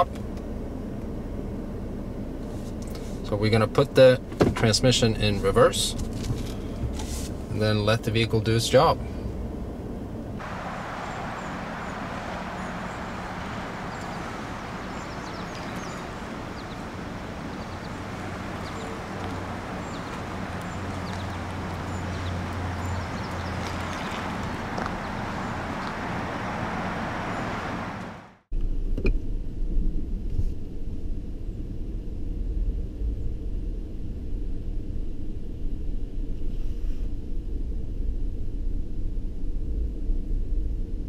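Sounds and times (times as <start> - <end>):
low uneven rumble: 0.0 - 41.0
pickup truck running: 2.8 - 28.4
low hum: 9.0 - 41.0.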